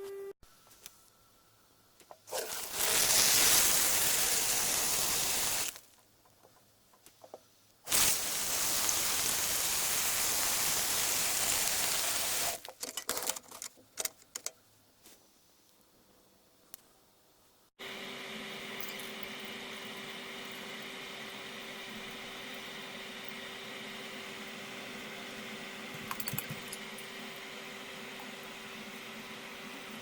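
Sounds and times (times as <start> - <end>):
hissing spray: 7.9 - 12.6
small clicks and rattles: 12.6 - 14.6.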